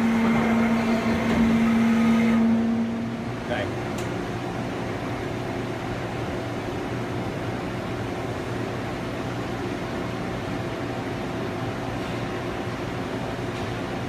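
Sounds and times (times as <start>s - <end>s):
lathe machine humming: 0.0s - 5.7s.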